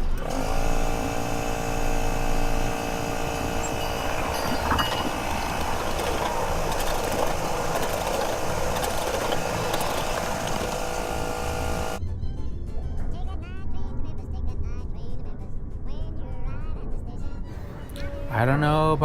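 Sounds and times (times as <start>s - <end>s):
train wheels clickety-clack: 4.2s - 11.2s.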